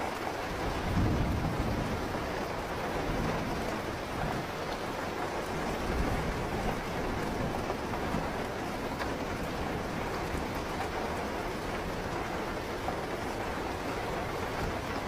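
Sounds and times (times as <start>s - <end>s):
rain falling: 0.0s - 15.0s
distant thunder rumble: 0.6s - 15.0s.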